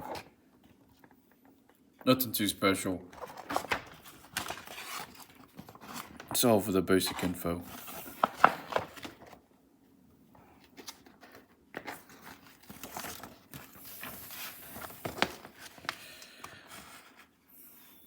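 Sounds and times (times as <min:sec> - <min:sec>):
paper pages rustling: 0:03.1 - 0:09.4, 0:10.4 - 0:17.4.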